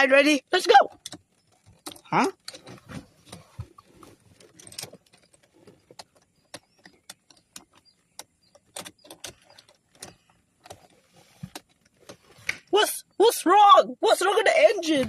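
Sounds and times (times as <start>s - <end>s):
key rattles: 0.9s - 3.4s, 4.4s - 10.3s.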